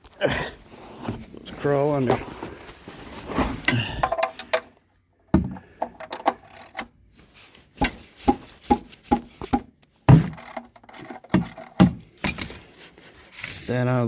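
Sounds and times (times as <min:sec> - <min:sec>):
person crawling on garage floor: 0:00.0 - 0:06.0, 0:11.4 - 0:13.7
knocks clicks and scrapes: 0:07.5 - 0:13.7.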